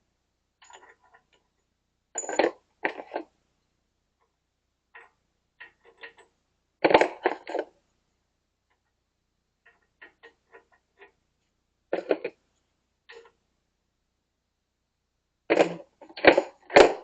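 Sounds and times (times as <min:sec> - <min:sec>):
metal tools clinking and knocking: 0:00.6 - 0:01.5, 0:02.2 - 0:03.2.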